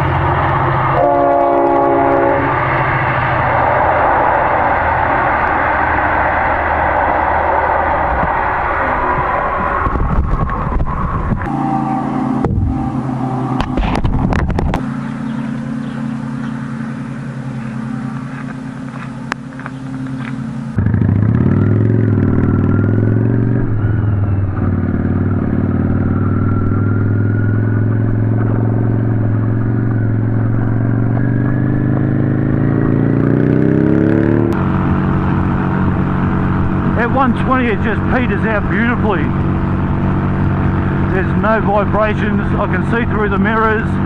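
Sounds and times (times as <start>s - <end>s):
motorcycle engine running: 9.9s - 44.0s.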